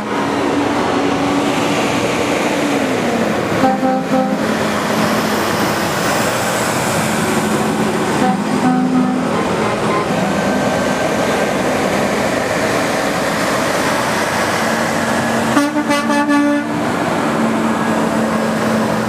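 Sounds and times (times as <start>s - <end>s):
heavy trucks rolling by: 0.0s - 19.0s
truck horn short honks: 3.6s - 4.4s, 8.2s - 9.3s, 15.6s - 16.7s.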